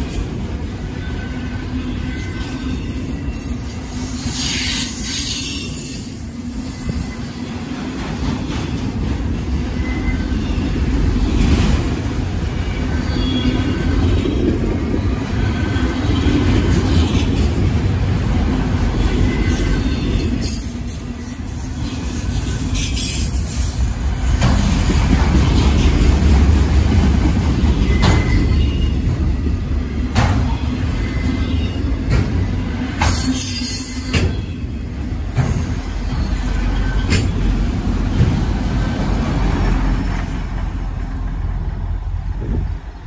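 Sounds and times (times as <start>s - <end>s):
freight train rumble: 0.0s - 43.0s
high wheel squeal: 0.9s - 7.5s, 9.5s - 10.8s, 19.0s - 23.9s, 27.8s - 29.1s, 30.5s - 31.9s, 33.1s - 40.3s
clanks from wheels and cars: 15.4s - 18.0s, 21.7s - 40.9s.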